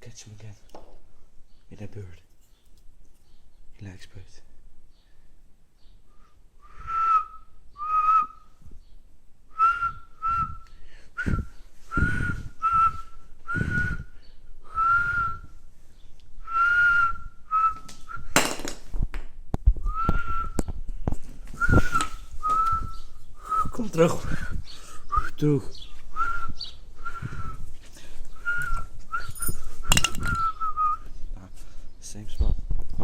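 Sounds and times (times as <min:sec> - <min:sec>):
person whistling short notes: 0:06.6 - 0:08.6, 0:09.5 - 0:14.1, 0:14.7 - 0:15.6, 0:21.6 - 0:25.4, 0:26.1 - 0:27.6, 0:28.3 - 0:31.1.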